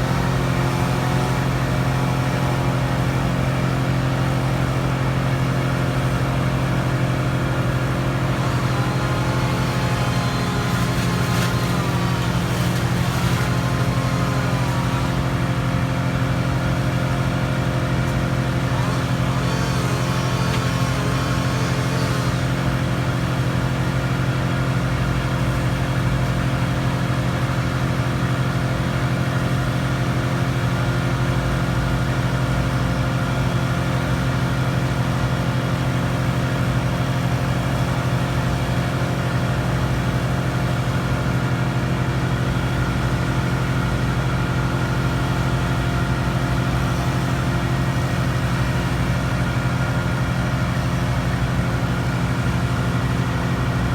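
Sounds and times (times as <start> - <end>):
large engine running steadily: 0.0 - 53.9.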